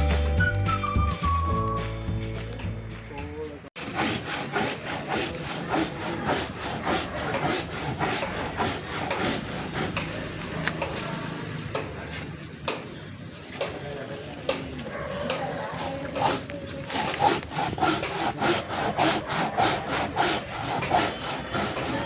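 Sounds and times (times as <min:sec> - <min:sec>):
hand saw cutting wood: 0:03.8 - 0:11.0, 0:15.2 - 0:22.0.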